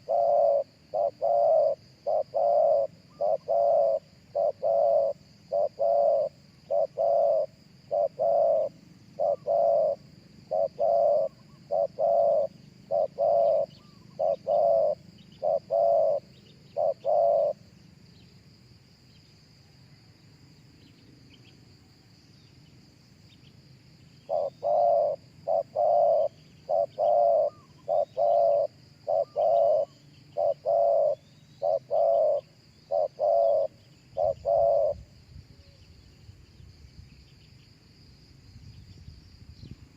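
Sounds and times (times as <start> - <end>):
dove cooing: 0.0 - 17.7, 24.2 - 35.8.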